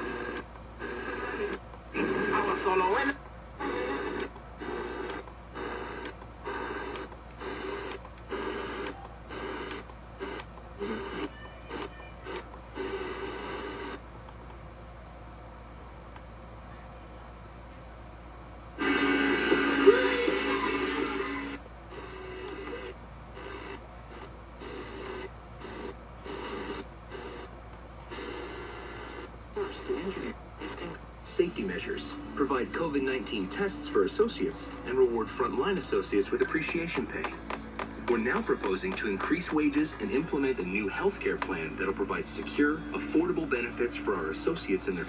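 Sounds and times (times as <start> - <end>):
radio speaker pulsing: 0.0 - 14.0, 28.1 - 45.0.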